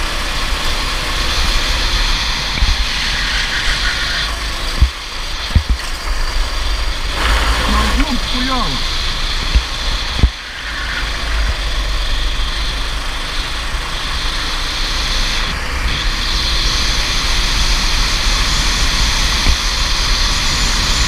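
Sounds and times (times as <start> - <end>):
go-kart engine drone: 0.0 - 21.0
wind rumble on microphone: 0.5 - 8.1.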